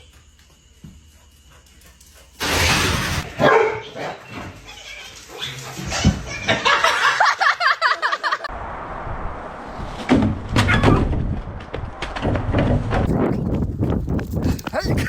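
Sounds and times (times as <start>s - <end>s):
dog yelping: 10.6s - 11.1s.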